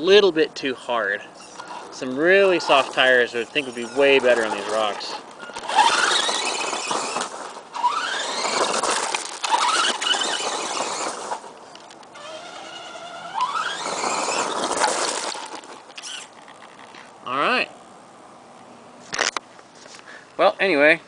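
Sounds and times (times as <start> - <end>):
electric motor and gears whining: 1.4 - 17.1.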